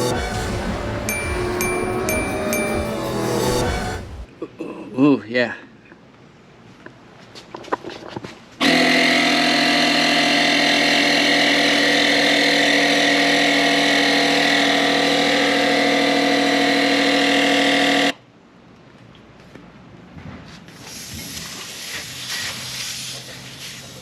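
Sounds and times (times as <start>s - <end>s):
air compressor motor running: 8.6s - 18.1s.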